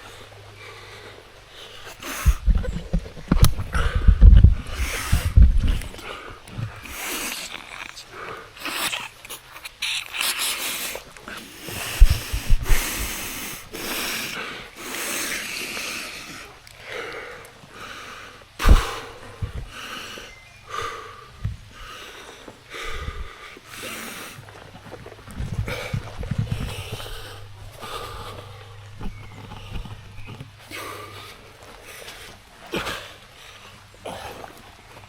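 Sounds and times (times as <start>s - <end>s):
low thumps: 2.2s - 6.0s
person breathing heavily wheezing: 3.5s - 9.2s, 10.4s - 24.4s, 25.5s - 34.5s.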